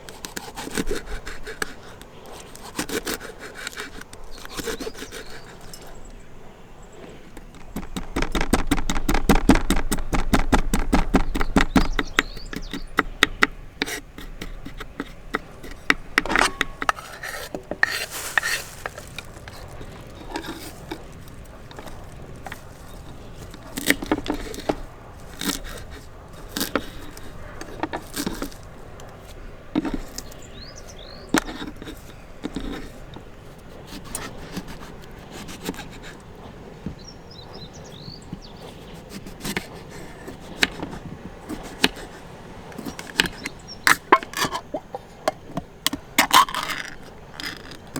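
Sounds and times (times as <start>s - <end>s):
fast run of clicks: 7.4s - 29.1s
utensils and dishes clinking: 13.9s - 30.5s, 42.8s - 47.9s.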